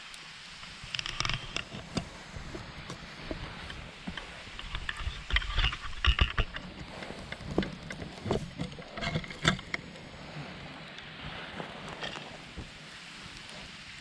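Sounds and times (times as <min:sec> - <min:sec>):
stream murmuring: 0:00.0 - 0:14.0
firewood cracking and thumping: 0:00.8 - 0:10.0.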